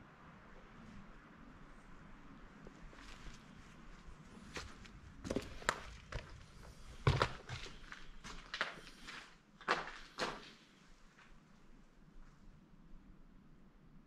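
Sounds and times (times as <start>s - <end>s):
footsteps walking: 2.6s - 11.4s.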